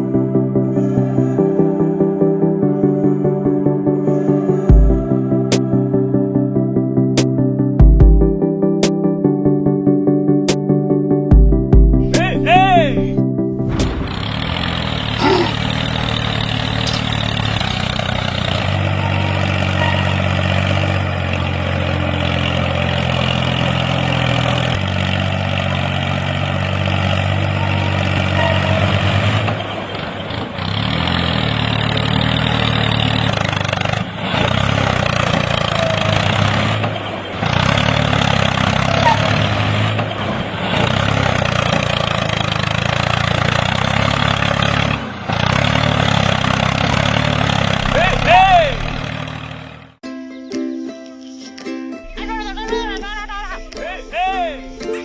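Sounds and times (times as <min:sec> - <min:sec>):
tractor engine droning: 0:11.5 - 0:50.0, 0:52.0 - 0:55.0.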